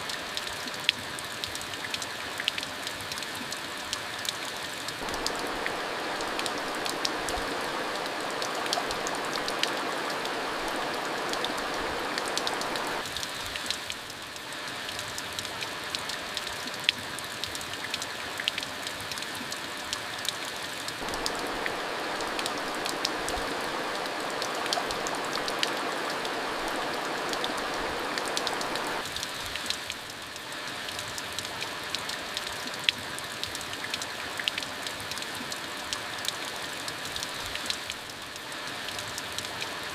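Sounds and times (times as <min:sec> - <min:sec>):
rushing rain: 0:00.0 - 0:39.9
steady rain falling: 0:00.0 - 0:39.9
sharp raindrop hits: 0:05.0 - 0:13.1.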